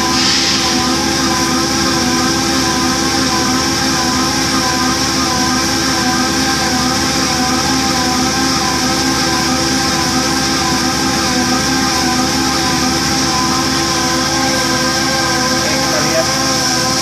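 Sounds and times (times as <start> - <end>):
machine hiss: 0.0 - 7.4
boring machine humming: 0.0 - 17.0.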